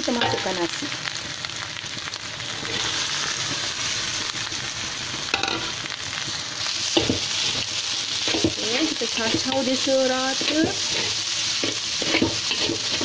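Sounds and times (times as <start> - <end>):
oil sizzling in a wok: 0.0 - 13.0
spatula stirring rice: 7.0 - 13.0.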